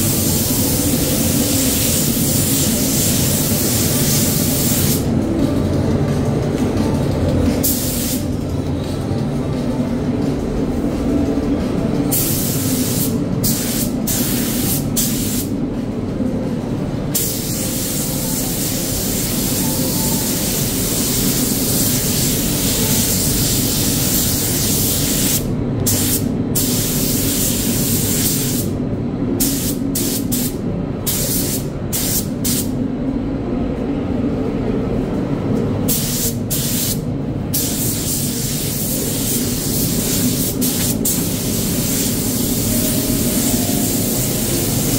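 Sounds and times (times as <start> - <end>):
steady low hum: 0.0 - 44.9
paint spray gun hissing: 37.6 - 44.9.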